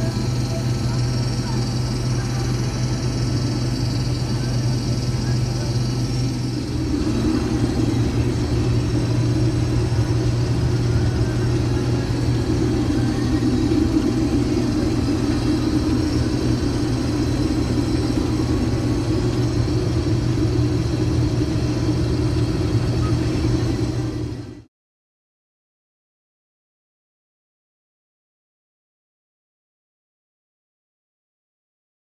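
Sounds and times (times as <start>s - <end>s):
combine harvester rumbling: 0.0s - 24.6s
faint high whining tones: 0.0s - 24.6s.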